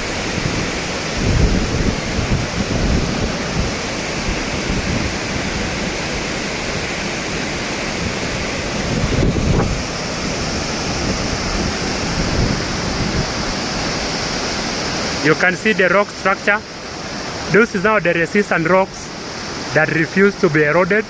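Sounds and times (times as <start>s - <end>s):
wind buffeting microphone: 0.0s - 15.0s
waterfall rushing: 0.0s - 21.0s.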